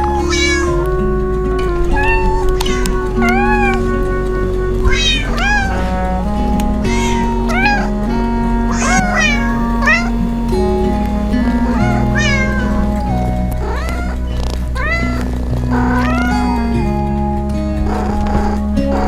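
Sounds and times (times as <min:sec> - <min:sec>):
cat meowing: 0:00.0 - 0:00.9, 0:01.6 - 0:08.0, 0:08.7 - 0:10.2, 0:11.7 - 0:16.9
background music sustained notes: 0:00.0 - 0:19.0.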